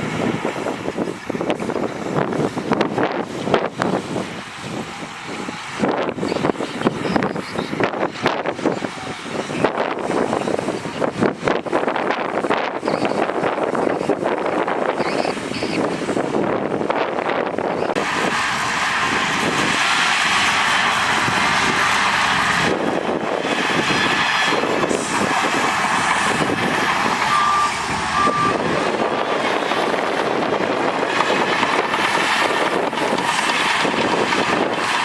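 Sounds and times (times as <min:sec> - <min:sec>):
heavy machinery diesel engines: 0:00.0 - 0:35.0
reversing alarm beeps: 0:27.0 - 0:29.0.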